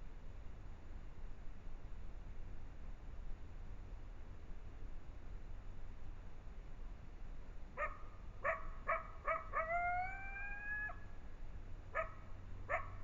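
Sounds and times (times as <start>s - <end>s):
coyote yipping: 7.8s - 11.0s, 11.9s - 13.0s
coyote howling: 7.8s - 11.1s.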